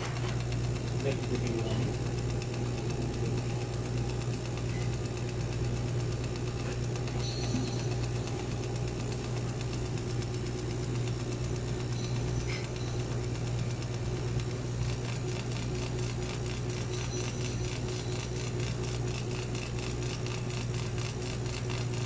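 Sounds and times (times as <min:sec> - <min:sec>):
router humming: 0:00.0 - 0:22.0.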